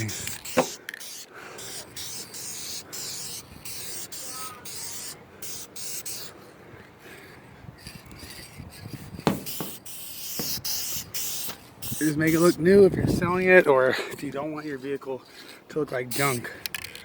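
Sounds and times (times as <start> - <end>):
aerosol spray can hissing: 0.0 - 6.3, 8.2 - 12.6, 16.1 - 16.4
sharp tap: 9.3 - 9.8.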